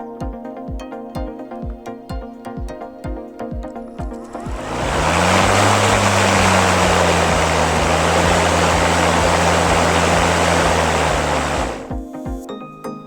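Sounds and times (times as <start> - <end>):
electric lawn mower whirring: 4.2 - 12.0.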